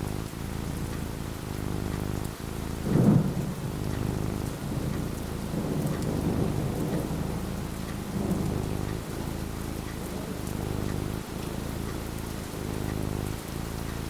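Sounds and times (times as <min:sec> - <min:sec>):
steady rain: 0:00.0 - 0:14.0
thunder rumbling: 0:02.8 - 0:09.1.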